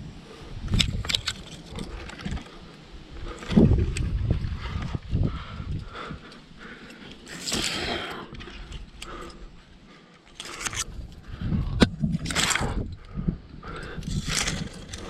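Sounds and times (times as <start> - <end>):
climber scraping on rock: 10.3 - 15.0.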